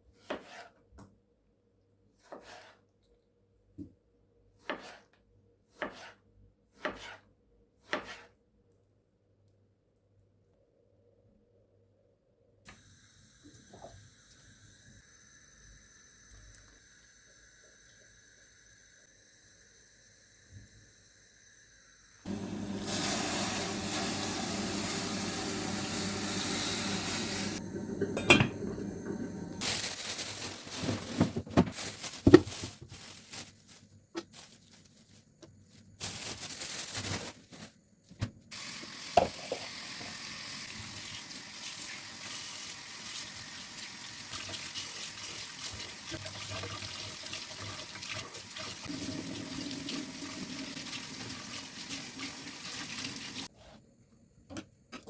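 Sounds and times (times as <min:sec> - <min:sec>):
water running at a sink: 0:22.3 - 0:29.6, 0:38.5 - 0:53.5
dishes clinking and knocking: 0:28.0 - 0:28.9.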